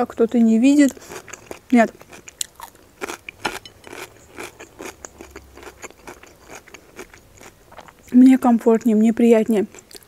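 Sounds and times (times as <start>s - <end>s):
person chewing food: 0.8s - 8.2s, 9.7s - 10.0s.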